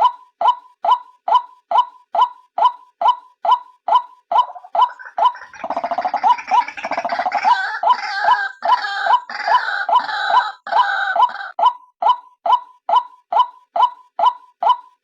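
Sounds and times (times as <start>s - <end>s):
fast gurgling chatter: 4.5s - 8.5s.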